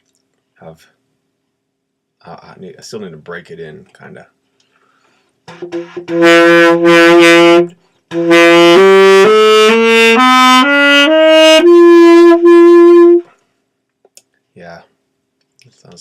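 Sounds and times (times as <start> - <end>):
saxophone playing scale: 5.5 - 13.3.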